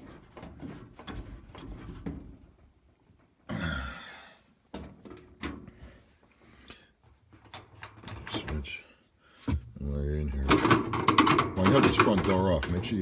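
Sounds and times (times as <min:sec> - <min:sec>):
metal parts knocking and clicking: 0:10.5 - 0:13.0.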